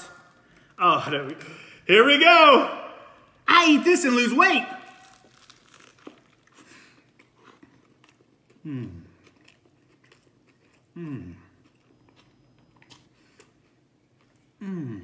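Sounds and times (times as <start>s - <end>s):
person chewing with mouth open: 5.0s - 15.0s
man humming mmm: 8.6s - 9.2s, 11.0s - 11.5s, 14.6s - 15.0s.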